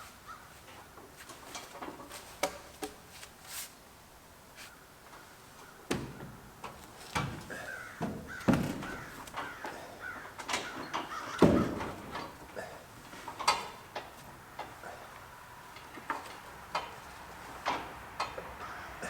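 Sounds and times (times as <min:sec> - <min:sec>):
wood and tools knocking: 0:05.8 - 0:12.5.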